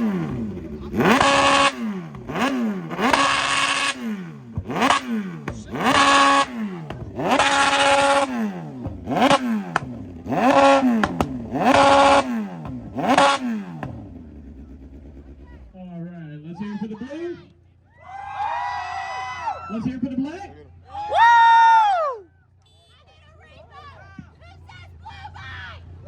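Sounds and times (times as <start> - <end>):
motorcycle engine revving: 0.0 - 16.2.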